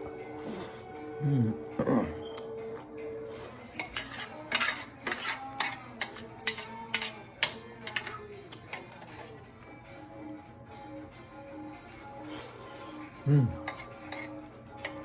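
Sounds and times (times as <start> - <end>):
faint background music: 0.0 - 15.0
spoon scraping a plate: 3.2 - 9.7, 12.4 - 15.0.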